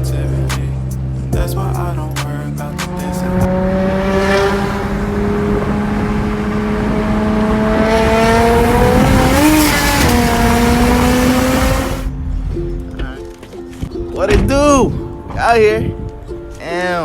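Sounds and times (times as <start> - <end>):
car engine revving under load: 0.0 - 12.1.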